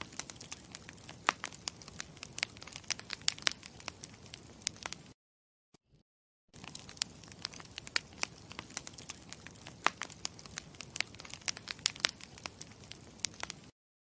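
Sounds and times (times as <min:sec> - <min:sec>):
campfire crackling: 0:00.0 - 0:05.2, 0:06.6 - 0:13.7.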